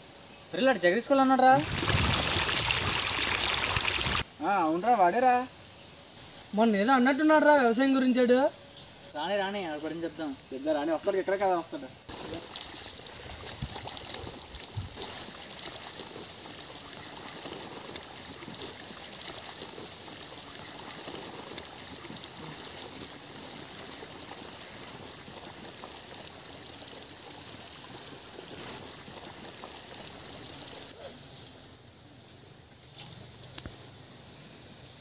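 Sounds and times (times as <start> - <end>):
running water: 1.3 - 4.2, 12.1 - 31.0.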